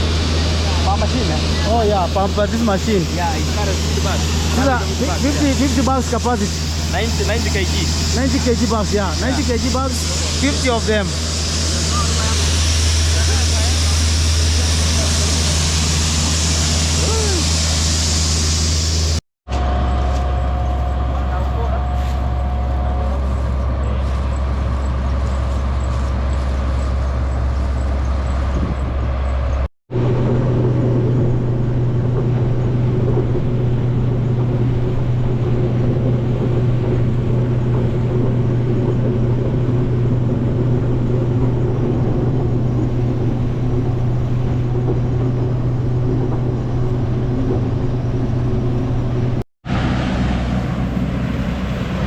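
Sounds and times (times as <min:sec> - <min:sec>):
farm machinery engine drone: 0:00.0 - 0:52.0
higher steady hum: 0:00.0 - 0:52.0.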